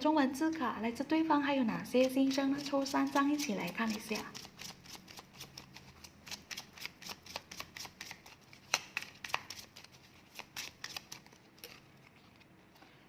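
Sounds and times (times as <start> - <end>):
cards shuffling and snapping: 2.6 - 11.9.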